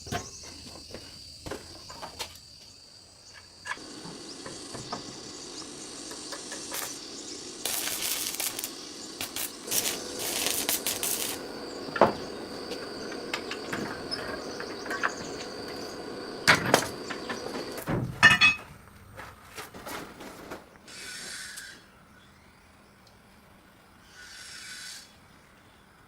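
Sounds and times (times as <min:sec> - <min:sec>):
steady running machine noise: 0:03.7 - 0:18.8
short hiss: 0:03.8 - 0:14.5.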